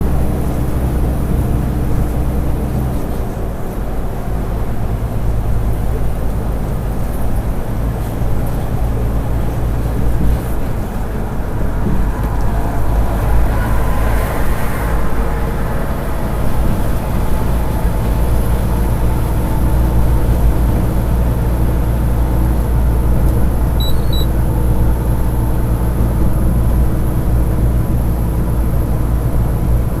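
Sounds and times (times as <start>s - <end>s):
truck engine and road rumble: 0.0s - 30.0s
short faint beeps: 23.8s - 24.3s.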